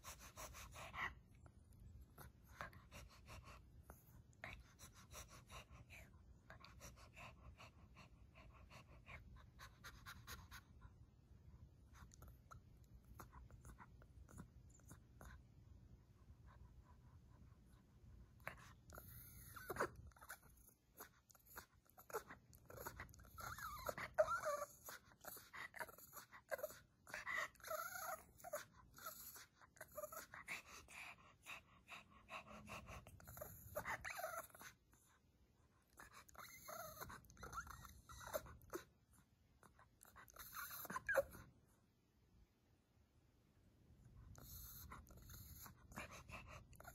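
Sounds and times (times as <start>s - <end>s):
dog vocalizing: 18.5s - 34.8s.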